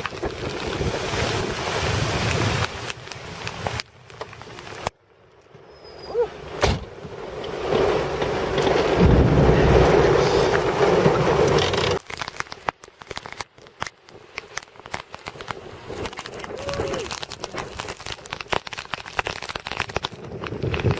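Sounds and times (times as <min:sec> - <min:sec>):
thunder rumbling: 0:07.1 - 0:12.0.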